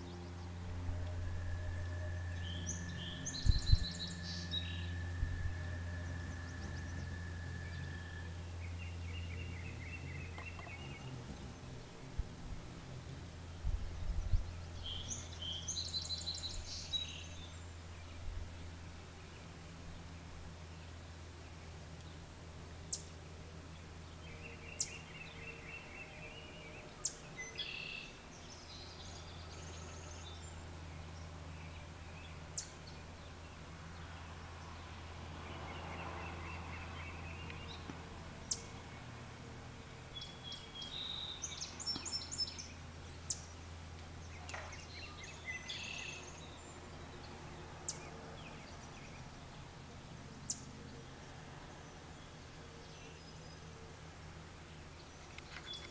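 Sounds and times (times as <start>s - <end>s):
small birds chipping and twittering: 0.0s - 55.9s
steady low hum: 0.0s - 55.9s.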